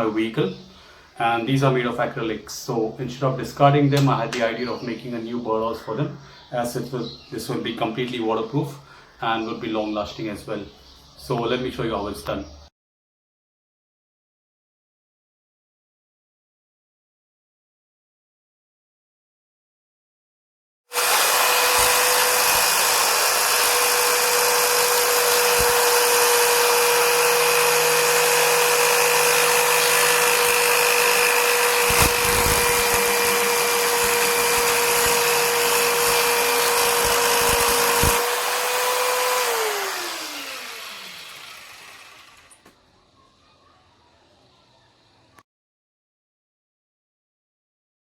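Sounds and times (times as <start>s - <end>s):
electric power tool motor: 20.9s - 42.7s.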